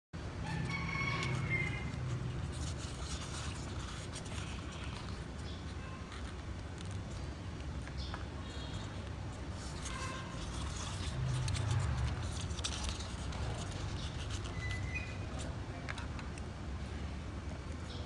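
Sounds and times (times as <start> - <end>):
steady low hum: 0.2 - 18.0
birds chirping: 13.9 - 15.4.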